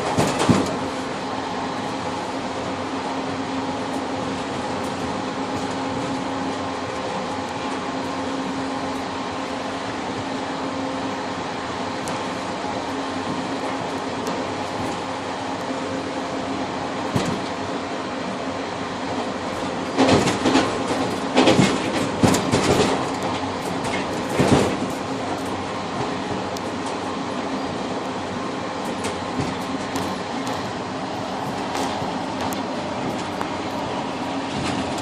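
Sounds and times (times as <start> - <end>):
train rumbling inside carriage: 0.0 - 35.0
wheels knocking over track joints: 19.6 - 26.2.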